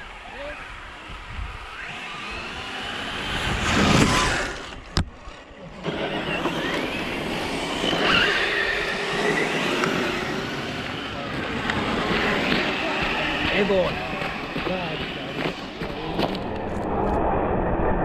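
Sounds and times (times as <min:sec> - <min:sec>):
electric motors whining: 0:00.0 - 0:17.2
tyres scrabbling on dirt: 0:02.6 - 0:16.8.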